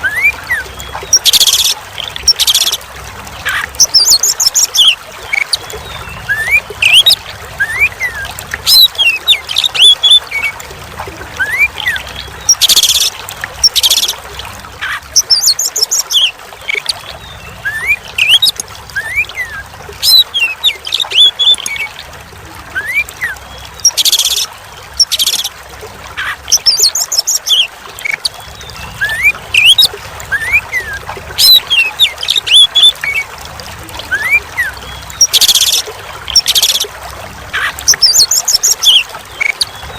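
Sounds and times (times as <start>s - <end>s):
water trickling: 0.0s - 39.9s
bird whistled song: 3.8s - 5.0s, 5.8s - 10.2s, 15.2s - 21.9s, 22.7s - 25.5s, 26.2s - 33.0s, 34.0s - 36.8s, 37.6s - 39.9s.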